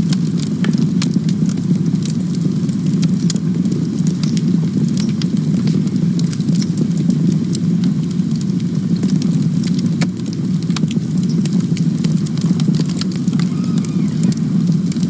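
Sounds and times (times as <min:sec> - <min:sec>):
campfire crackling and popping: 0:00.0 - 0:15.0
low rumble of flame: 0:00.0 - 0:15.0
faint whistle: 0:13.3 - 0:14.7.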